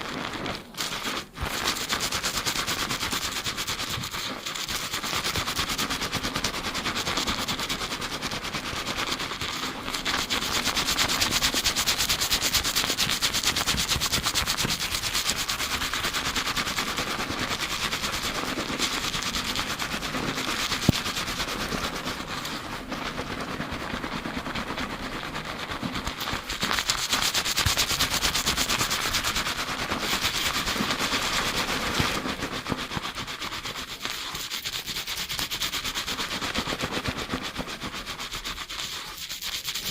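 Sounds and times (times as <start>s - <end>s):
fingers scrubbing lathered hair: 0.0s - 39.9s.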